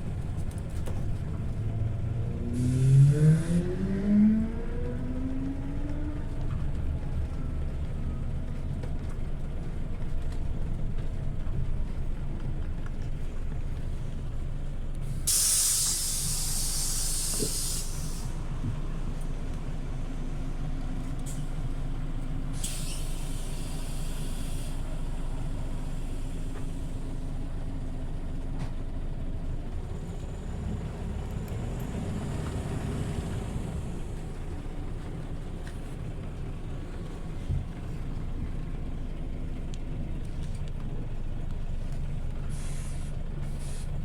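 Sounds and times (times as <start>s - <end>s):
bus engine rumbling: 0.0s - 44.0s
compressed air hissing: 15.2s - 18.4s, 22.6s - 24.8s, 42.5s - 43.9s.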